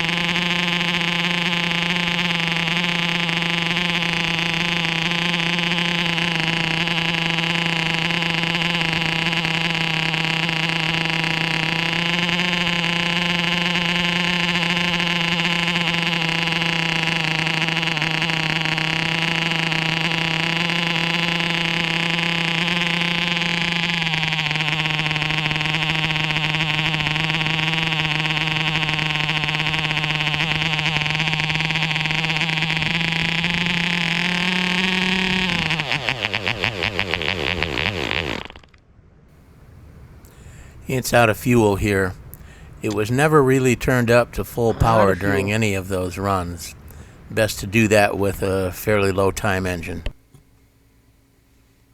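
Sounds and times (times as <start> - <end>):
model airplane engine buzzing: 0.0 - 38.8.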